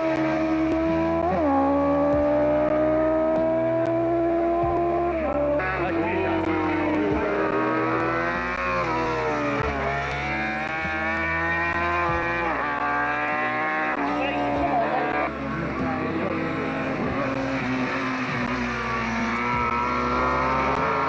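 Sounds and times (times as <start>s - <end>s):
race car engine revving: 0.0s - 21.0s.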